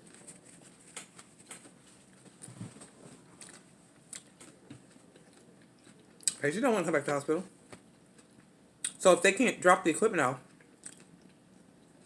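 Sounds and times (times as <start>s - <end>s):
faint chewing: 0.0s - 6.4s, 7.7s - 9.0s, 10.5s - 12.0s.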